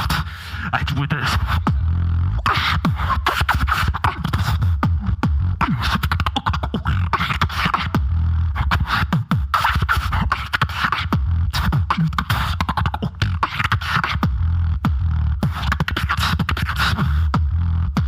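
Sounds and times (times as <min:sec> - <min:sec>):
deep bass hum: 0:00.0 - 0:18.0
person beatboxing: 0:00.0 - 0:18.0
downward bass sweeps: 0:00.8 - 0:03.1, 0:04.6 - 0:05.6.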